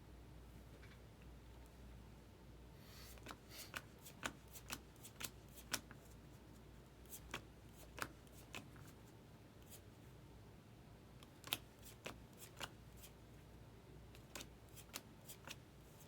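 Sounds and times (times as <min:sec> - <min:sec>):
cards being flipped by hand: 0:03.1 - 0:06.2, 0:07.1 - 0:09.0, 0:11.2 - 0:13.2, 0:14.2 - 0:16.0.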